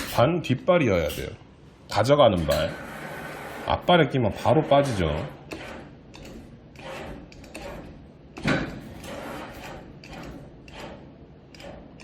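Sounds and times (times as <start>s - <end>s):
claw machine mechanism running: 4.8s - 12.0s.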